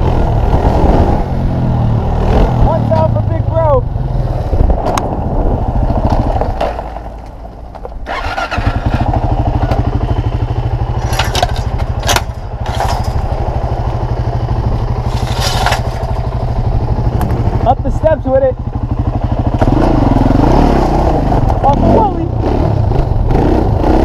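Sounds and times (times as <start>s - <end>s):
small engine puttering: 8.0s - 9.9s, 10.9s - 13.3s
sharp clatters: 11.0s - 13.3s, 15.0s - 16.4s.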